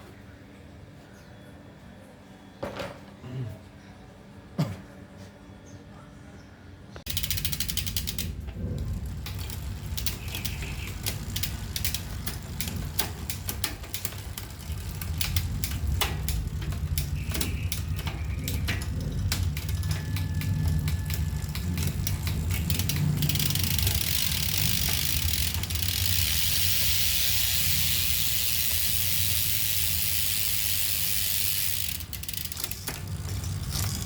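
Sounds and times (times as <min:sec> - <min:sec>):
bicycle drivetrain clicking: 0:07.1 - 0:34.0.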